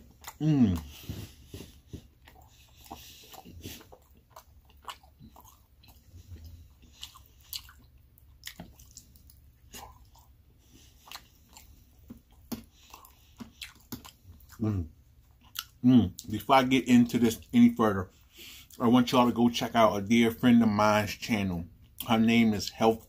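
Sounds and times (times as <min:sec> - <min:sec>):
person chewing food: 0:00.0 - 0:16.4.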